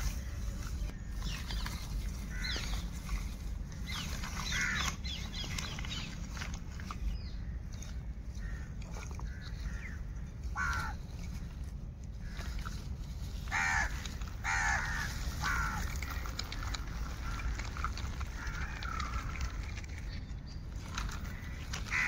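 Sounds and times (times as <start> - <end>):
steady low rumble: 0.0 - 22.0
bird short harsh calls: 3.8 - 6.1.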